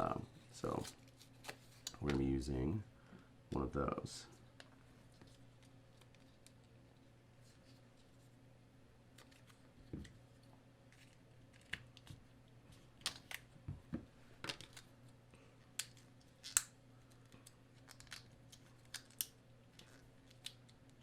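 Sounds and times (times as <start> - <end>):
faint steady hum: 0.0 - 21.0
packaging clicks and crinkles: 15.8 - 21.0.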